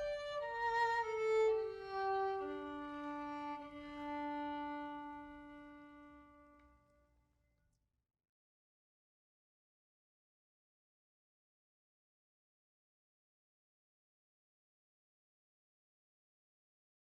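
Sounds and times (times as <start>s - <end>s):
solo violin: 0.0s - 7.1s.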